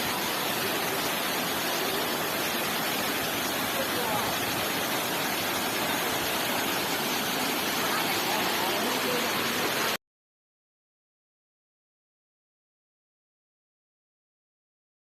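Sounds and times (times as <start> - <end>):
faint voices: 0.0 - 10.0
waterfall rushing: 0.0 - 10.0.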